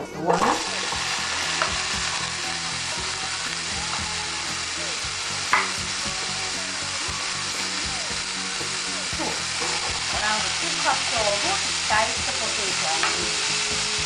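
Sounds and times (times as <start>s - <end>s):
potatoes sizzling in frying pan: 0.5s - 14.0s
utensil knock: 5.5s - 5.8s.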